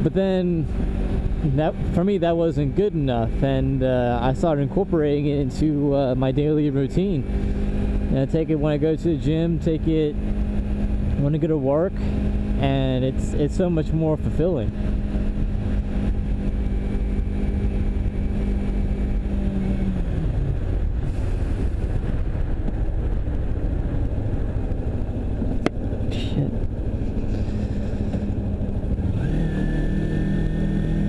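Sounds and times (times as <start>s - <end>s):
motorcycle engine revving: 0.0s - 31.0s
road noise: 0.0s - 31.0s
wind noise: 11.9s - 31.0s.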